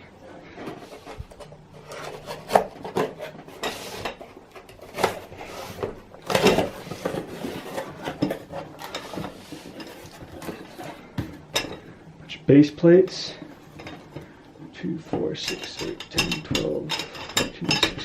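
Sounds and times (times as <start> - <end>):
cardboard rustling and scraping: 0.2 - 11.4.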